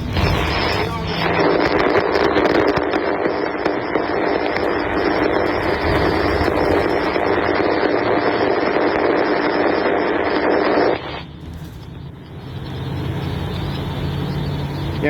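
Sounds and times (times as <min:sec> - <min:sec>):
low rumble: 0:00.0 - 0:09.6
faint steady hum: 0:00.0 - 0:15.0
freight train cars rolling past: 0:03.8 - 0:07.8.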